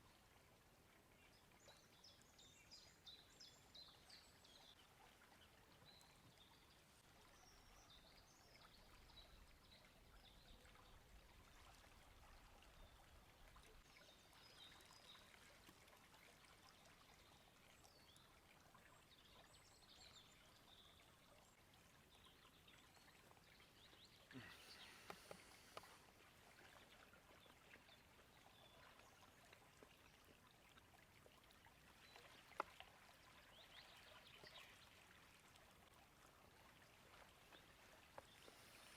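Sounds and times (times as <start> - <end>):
small birds chirping: 22.2 - 26.0.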